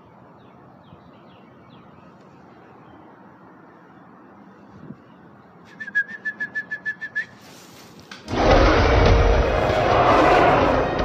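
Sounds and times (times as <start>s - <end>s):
loud music: 8.3s - 11.0s.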